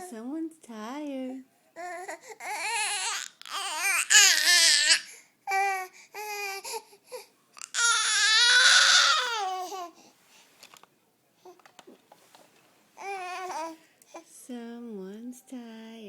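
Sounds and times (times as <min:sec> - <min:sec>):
baby squealing and wailing: 0:01.8 - 0:06.7, 0:07.6 - 0:09.9.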